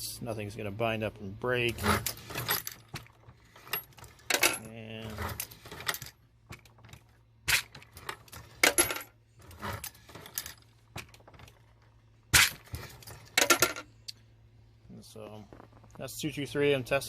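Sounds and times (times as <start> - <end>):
metal cases clinking: 1.9 - 13.9.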